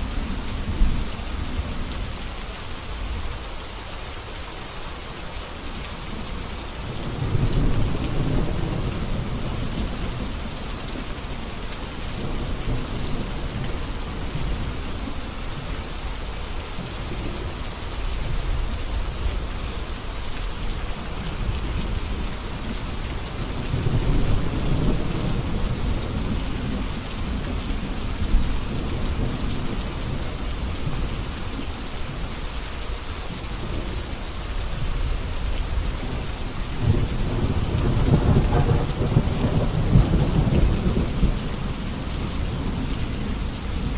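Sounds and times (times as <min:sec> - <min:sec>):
steady rain falling: 0:00.0 - 0:43.9
low rolls of thunder: 0:20.9 - 0:31.1, 0:35.0 - 0:43.9.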